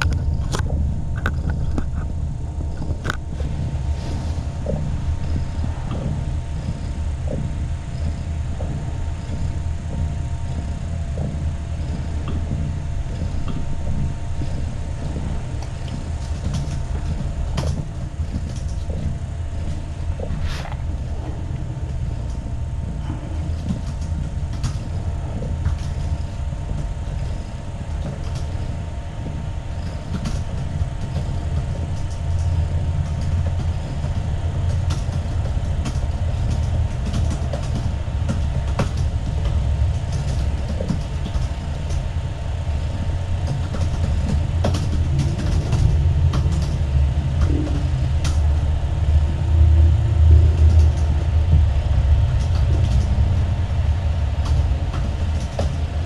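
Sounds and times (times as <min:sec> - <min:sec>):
small clicks and taps: 0:00.0 - 0:03.2
cat purring: 0:00.0 - 0:56.0.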